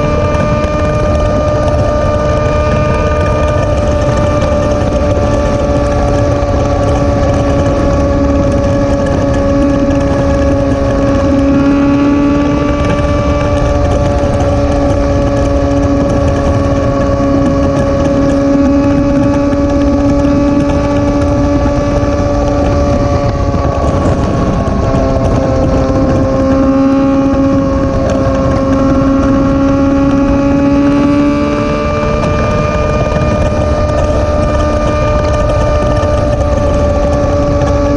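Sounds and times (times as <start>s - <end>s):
low wind rumble: 0.0s - 37.9s
motorcycle engine cruising: 0.0s - 37.9s.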